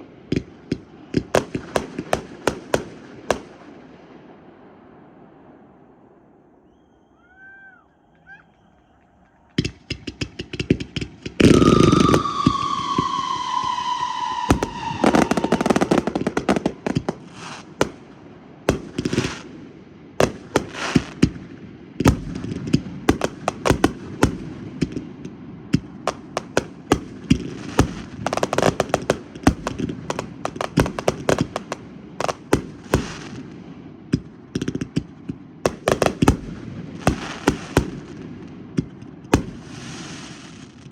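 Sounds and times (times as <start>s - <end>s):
firecrackers crackling: 0.0s - 4.1s, 8.6s - 40.9s
firework pops and bangs: 0.3s - 3.6s, 9.5s - 19.6s, 20.2s - 21.4s, 22.0s - 40.9s
whistling firework: 6.5s - 18.1s, 18.7s - 19.5s, 20.2s - 21.4s, 22.0s - 25.1s, 25.7s - 33.6s, 34.6s - 38.3s, 39.3s - 40.9s.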